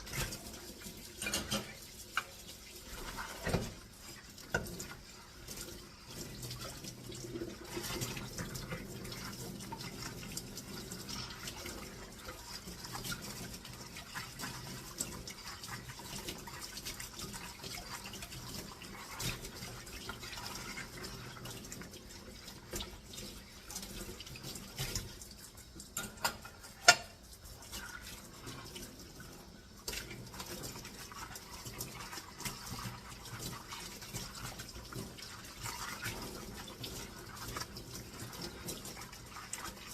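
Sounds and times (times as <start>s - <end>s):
tap water running into sink: 0.0s - 39.9s
dishes clinking: 1.1s - 2.3s, 26.0s - 27.2s.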